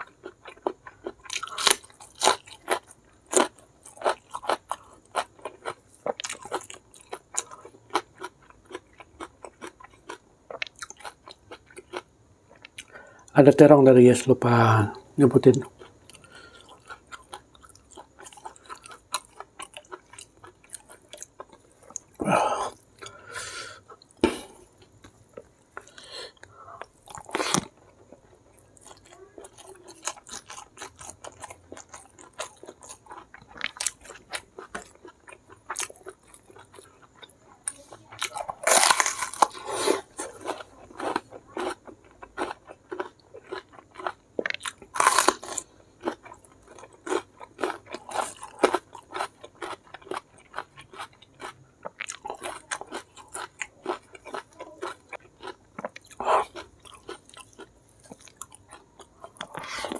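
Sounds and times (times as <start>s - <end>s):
crisp crunch of biting vegetable: 0.0s - 11.2s, 26.8s - 27.8s, 28.7s - 59.9s
chewing and crunching food: 0.0s - 59.9s.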